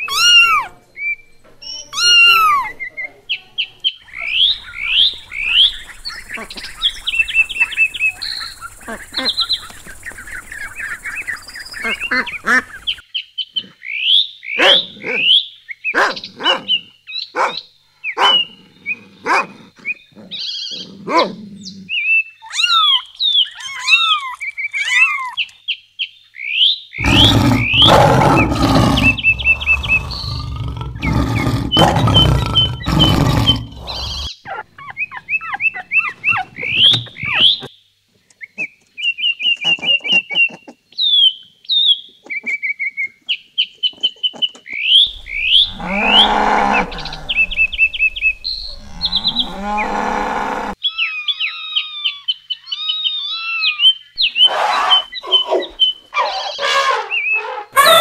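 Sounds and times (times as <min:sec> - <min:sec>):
birds chirping: 0:00.0 - 0:37.7, 0:38.3 - 0:58.0
lion roaring: 0:27.0 - 0:34.3, 0:45.1 - 0:50.8.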